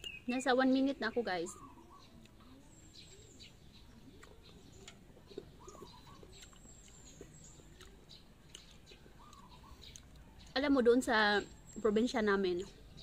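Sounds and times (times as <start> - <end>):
faint bird calls: 1.3 - 10.6.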